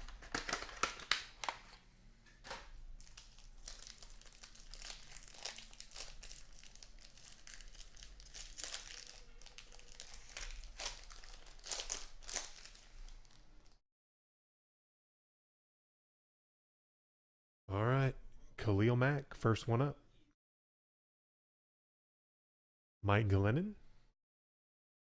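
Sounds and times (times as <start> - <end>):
plastic wrapping crinkling and tearing: 0.0 - 1.8, 2.4 - 13.8.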